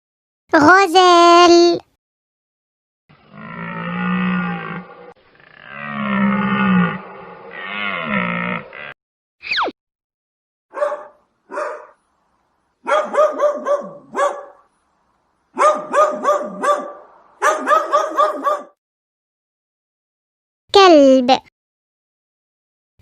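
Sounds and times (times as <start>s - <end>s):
small dog barking: 10.7s - 12.0s, 12.8s - 14.7s, 15.6s - 18.8s.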